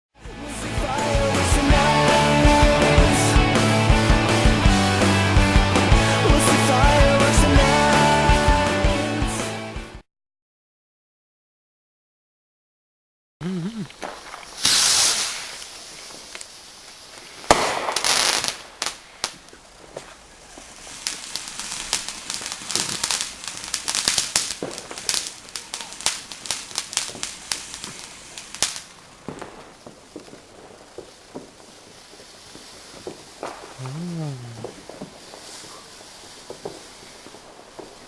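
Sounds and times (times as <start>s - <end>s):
firework crackling pops: 13.7s - 38.0s
firework rush: 13.7s - 38.0s
firework bang: 14.0s - 16.2s, 17.4s - 19.4s, 26.6s - 31.8s, 32.5s - 33.9s, 34.5s - 38.0s.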